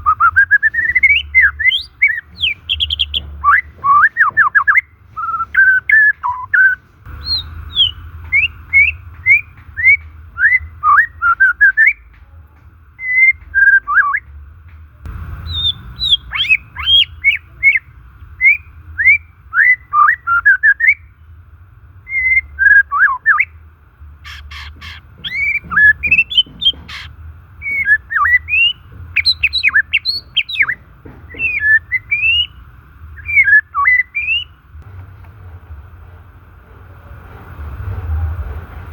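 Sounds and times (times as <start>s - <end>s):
bird singing whistled notes: 0.0s - 12.1s, 13.0s - 14.4s, 15.3s - 21.3s, 22.0s - 23.6s, 24.3s - 34.6s
harsh rasping bird notes: 0.0s - 12.1s, 15.1s - 21.1s, 24.1s - 34.6s.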